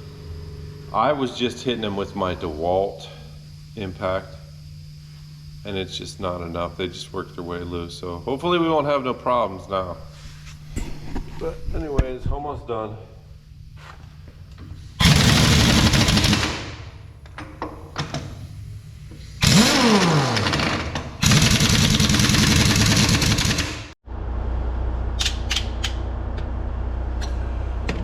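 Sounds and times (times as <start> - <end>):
steady low hum: 0.0 - 28.0
impact wrench hammering: 19.4 - 23.9.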